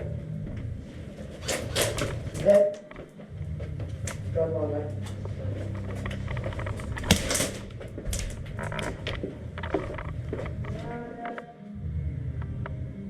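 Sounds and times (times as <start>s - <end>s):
low rumble of camera handling: 5.2s - 10.8s
clicks and knocks: 6.0s - 10.8s
sharp crack: 6.4s - 8.5s.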